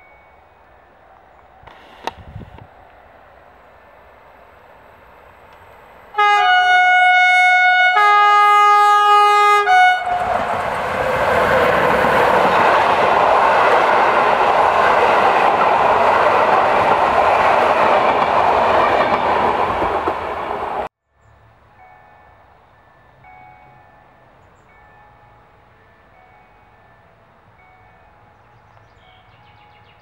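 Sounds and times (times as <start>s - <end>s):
passenger train rushing past: 0.0s - 30.0s
train horn chord: 6.1s - 10.5s.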